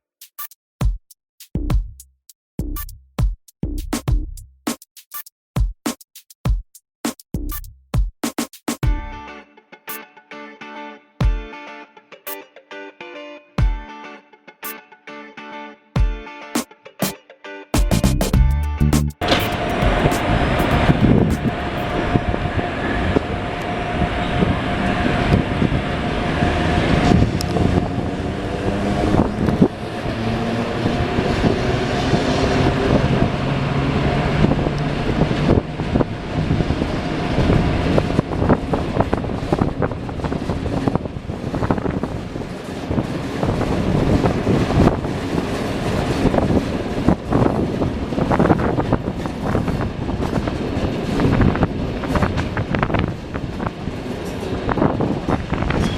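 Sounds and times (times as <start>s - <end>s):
steady tone: 17.9s - 39.2s
wheels clicking over rails: 19.2s - 22.1s, 26.9s - 55.9s
train running on track: 19.2s - 55.9s.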